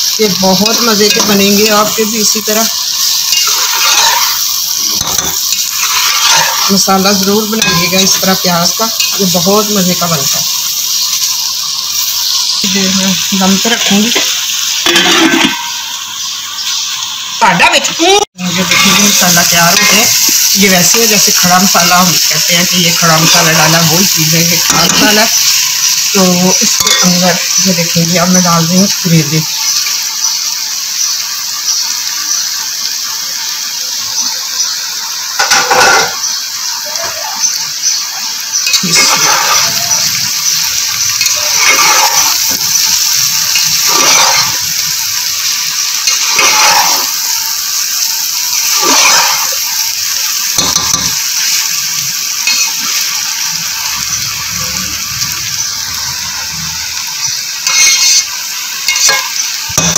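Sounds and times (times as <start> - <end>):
food sizzling in a pot: 0.0 - 59.9
spatula scraping through food: 5.1 - 6.8, 38.8 - 40.1, 41.2 - 42.6, 43.8 - 44.6, 48.7 - 49.5.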